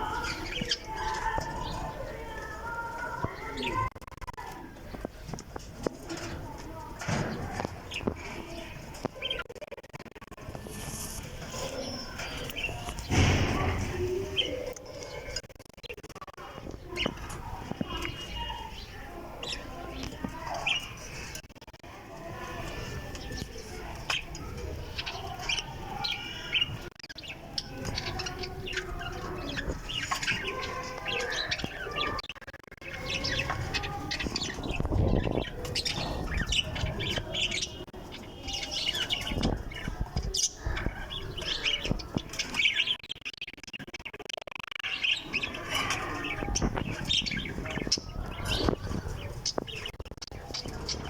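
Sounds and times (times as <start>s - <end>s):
birds chirping and calling: 0.0s - 51.0s
loud thumps: 12.9s - 14.3s.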